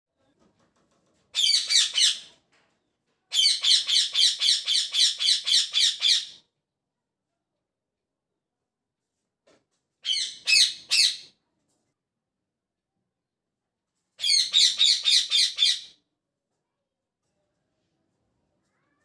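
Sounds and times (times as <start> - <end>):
parrot chirping and squawking: 1.4 - 2.3, 3.3 - 6.4, 10.0 - 11.3, 14.2 - 15.9.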